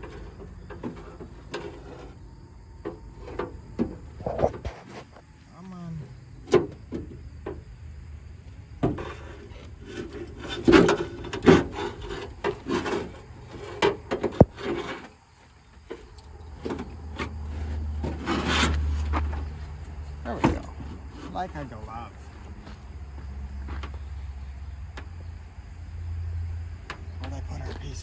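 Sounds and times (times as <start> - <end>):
metal scraping and rubbing: 0.0 - 2.3, 3.0 - 5.2, 8.9 - 15.4, 16.6 - 22.4
metal knocks and clunks: 8.8 - 15.0.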